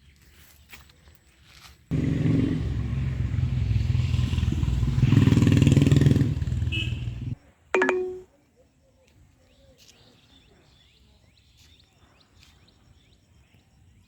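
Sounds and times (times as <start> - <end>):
vehicle engine humming: 6.2 - 7.4.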